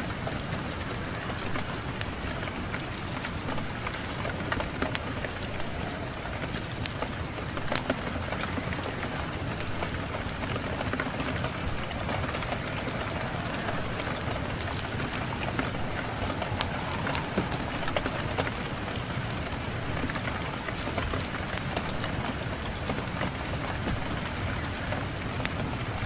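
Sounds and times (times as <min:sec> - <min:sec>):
wood fire crackling: 0:00.0 - 0:26.0
wind rushing: 0:11.6 - 0:20.5.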